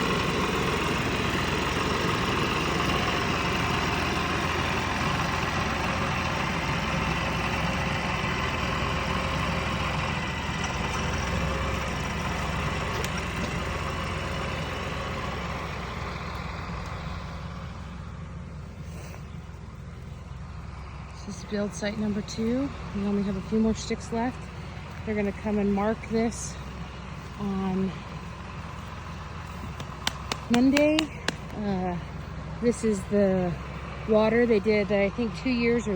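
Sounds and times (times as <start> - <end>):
tractor diesel engine running: 0.0 - 35.9.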